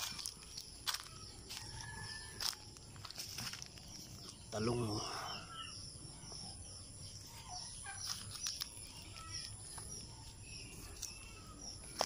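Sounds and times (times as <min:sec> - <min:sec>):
bird calls: 0:00.0 - 0:12.0.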